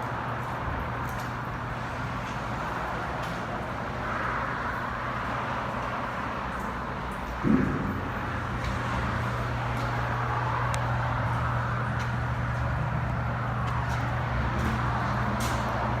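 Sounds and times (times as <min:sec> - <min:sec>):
brief thump: 0:07.4 - 0:08.2.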